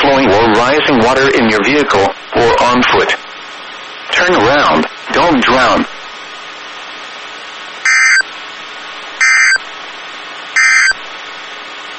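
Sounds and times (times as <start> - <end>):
radio hiss: 0.0 - 6.0
warbling data bursts: 7.9 - 8.2, 9.2 - 9.6, 10.6 - 11.0.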